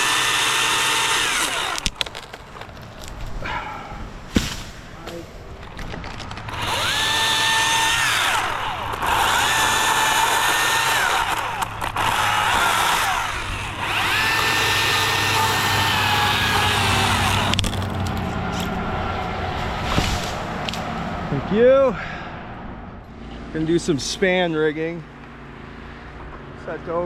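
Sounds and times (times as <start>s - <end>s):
chainsaw cutting wood: 0.0s - 2.7s, 6.0s - 18.7s.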